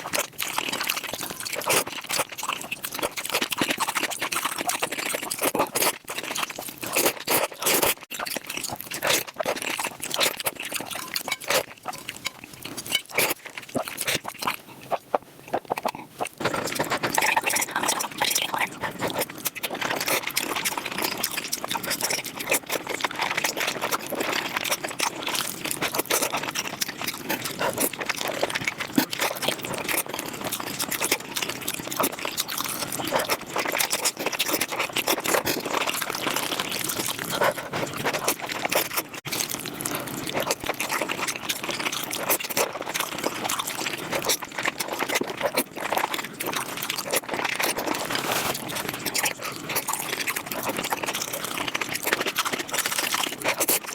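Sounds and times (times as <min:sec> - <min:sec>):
fast chewing and mouth noises: 0:00.0 - 0:53.9.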